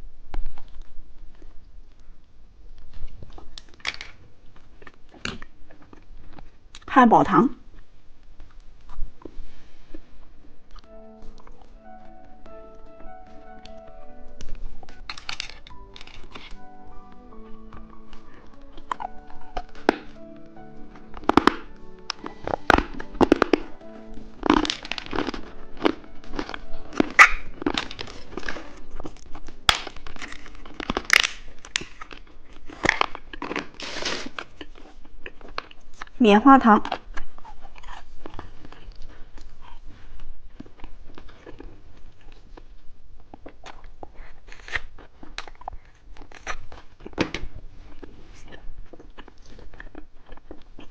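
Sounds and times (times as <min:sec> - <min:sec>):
candy being chewed: 0:02.7 - 0:06.9, 0:07.6 - 0:50.9
plastic wrapper crinkling: 0:08.1 - 0:36.2
soft background music: 0:09.4 - 0:33.8.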